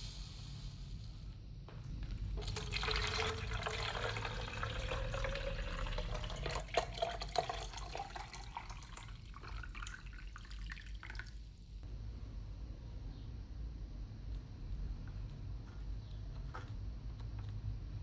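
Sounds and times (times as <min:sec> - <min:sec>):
water running into container: 0:02.3 - 0:11.6
water splashes and drips: 0:02.4 - 0:11.6.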